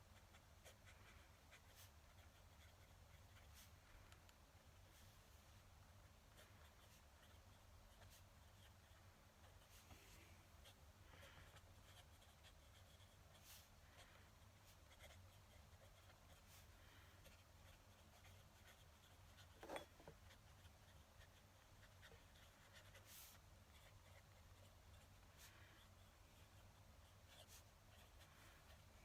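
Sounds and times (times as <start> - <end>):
pen nib scratching on paper: 0.1 - 4.1, 6.0 - 29.0.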